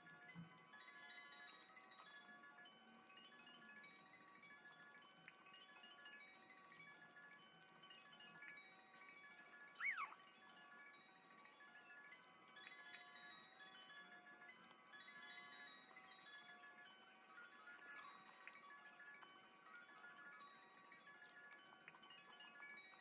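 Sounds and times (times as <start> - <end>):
faint chimes ringing: 9.8 - 10.3.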